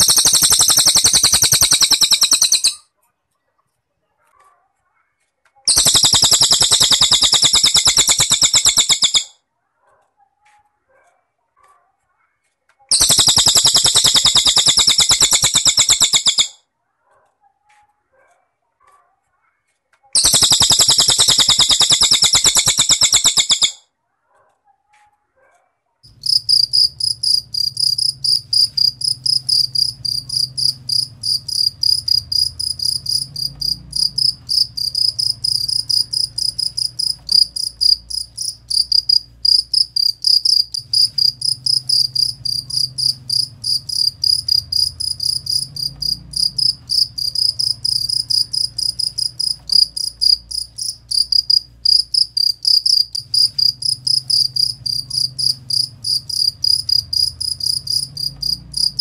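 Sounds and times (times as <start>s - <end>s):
cricket chirping: 0.0s - 2.8s, 5.7s - 9.3s, 12.9s - 16.5s, 20.2s - 23.8s, 26.1s - 59.0s
faint low hum: 26.1s - 59.0s.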